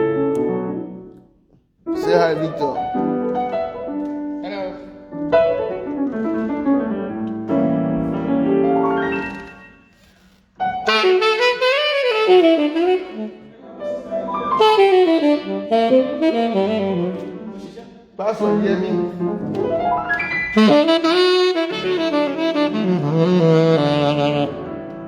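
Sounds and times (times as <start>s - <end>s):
keyboard accompaniment: 0.0s - 10.0s, 10.6s - 25.0s
saxophone playing: 10.6s - 17.8s, 18.4s - 19.6s, 20.3s - 25.0s.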